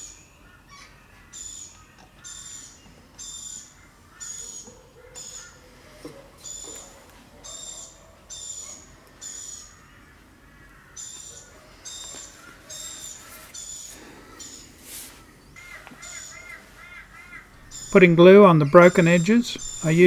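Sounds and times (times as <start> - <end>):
bird warbling call: 15.6 - 20.0
bird short high call: 17.6 - 20.0.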